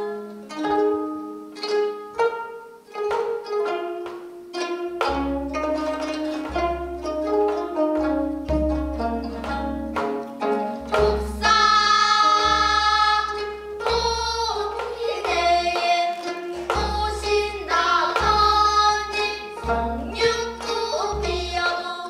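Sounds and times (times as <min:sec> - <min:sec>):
zithers plucking: 0:00.0 - 0:22.0
people singing held notes: 0:10.8 - 0:22.0.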